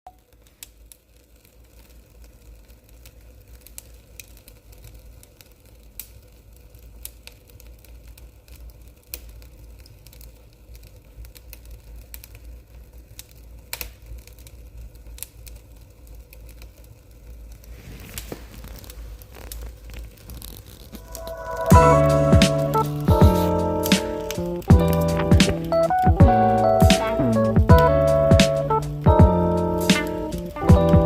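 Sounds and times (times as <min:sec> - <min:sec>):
wood fire crackling: 0:00.1 - 0:31.0
low steady rumble: 0:20.1 - 0:31.0.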